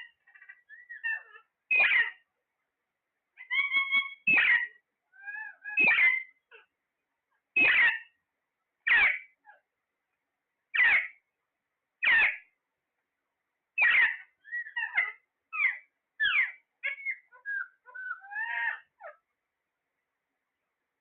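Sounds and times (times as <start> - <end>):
parrot squawking: 0.0 - 2.2, 3.4 - 6.7, 7.6 - 8.2, 8.9 - 9.6, 10.7 - 11.2, 12.0 - 12.5, 13.8 - 19.2
parrot chirps and whistles: 0.4 - 2.2, 3.4 - 6.4, 7.6 - 8.1, 8.9 - 9.3, 10.8 - 11.2, 12.0 - 12.4, 13.8 - 19.2.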